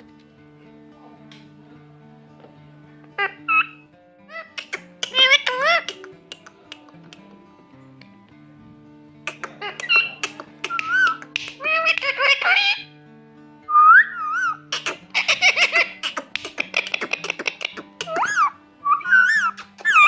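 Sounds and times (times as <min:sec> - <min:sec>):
background music: 0:00.0 - 0:20.0
parrot chattering and whistling: 0:03.2 - 0:07.3, 0:09.3 - 0:12.9, 0:13.7 - 0:20.0.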